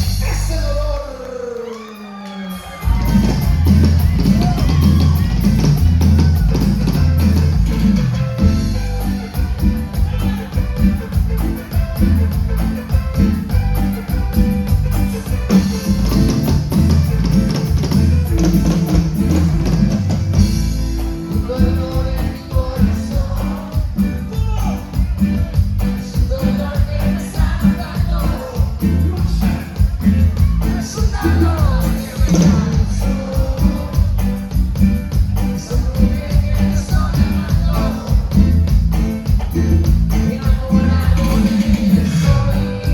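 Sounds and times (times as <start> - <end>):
live band playing latin dance music: 0.0 - 42.9
person singing: 21.2 - 34.6, 35.4 - 42.9.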